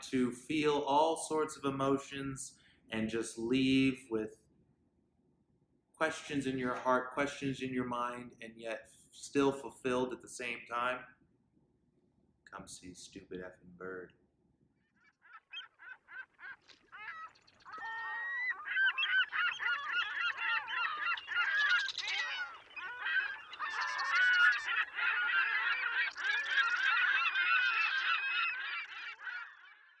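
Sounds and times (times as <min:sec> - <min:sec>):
flock of birds calling: 0:15.2 - 0:30.0.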